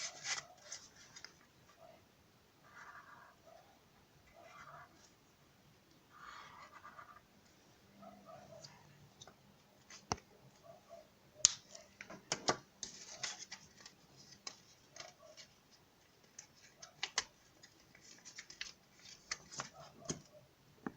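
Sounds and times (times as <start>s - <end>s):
paper rustling: 0.0s - 1.4s, 12.5s - 20.3s.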